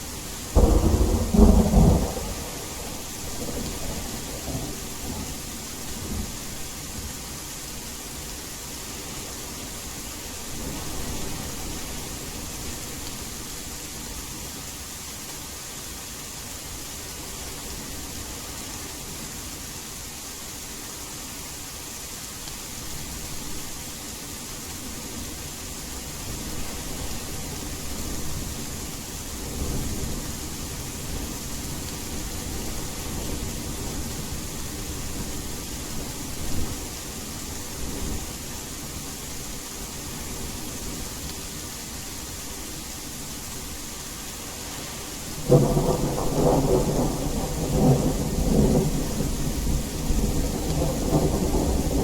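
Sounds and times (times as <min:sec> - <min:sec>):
steady rain: 0:00.0 - 0:52.0
low rumble of thunder: 0:00.4 - 0:07.1, 0:45.3 - 0:52.0
loud thunderclap: 0:00.6 - 0:05.2, 0:45.4 - 0:52.0.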